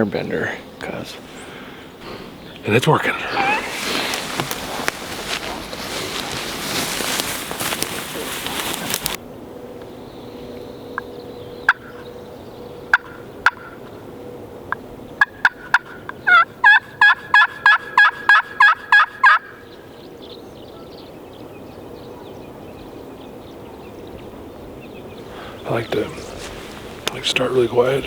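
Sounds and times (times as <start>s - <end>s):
turkey call yelps: 3.0s - 9.2s, 15.2s - 19.7s.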